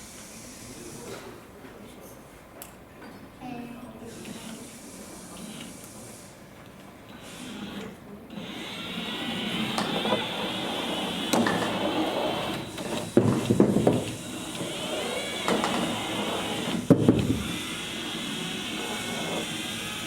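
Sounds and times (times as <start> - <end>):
robot motors whirring: 7.2 - 20.0.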